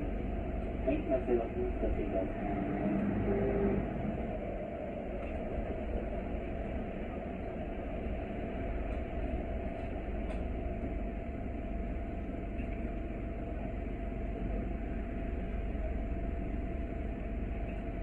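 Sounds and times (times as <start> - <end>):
bus engine and road rumble: 0.0 - 18.0
faint constant hum: 0.0 - 18.0.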